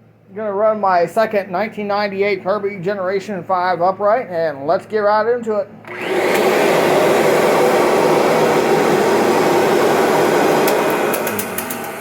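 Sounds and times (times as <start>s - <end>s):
upright vacuum running: 5.8s - 12.0s.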